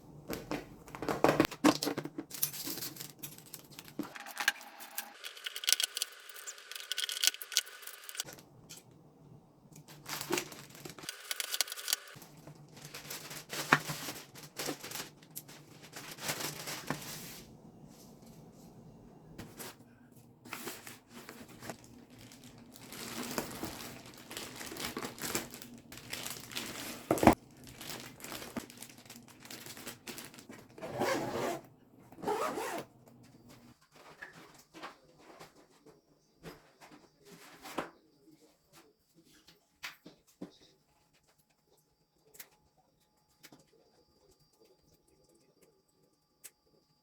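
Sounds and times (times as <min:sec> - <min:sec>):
packaging crinkling and tearing: 0:09.8 - 0:17.0, 0:20.6 - 0:30.8.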